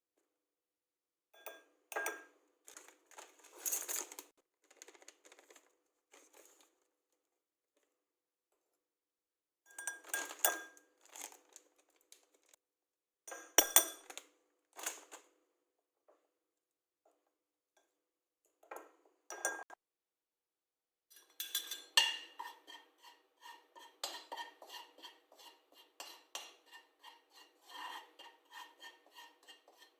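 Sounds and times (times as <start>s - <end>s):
dishes and utensils clinking: 9.7s - 10.8s, 21.1s - 22.9s.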